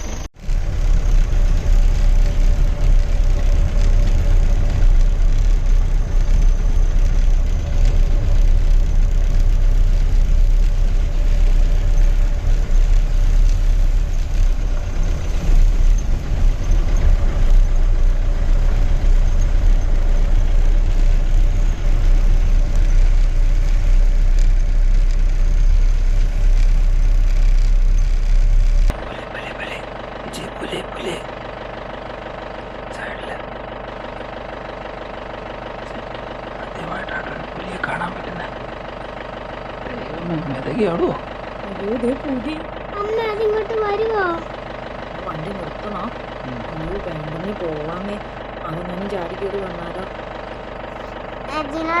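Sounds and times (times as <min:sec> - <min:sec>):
jeep engine rumbling: 0:00.0 - 0:52.0.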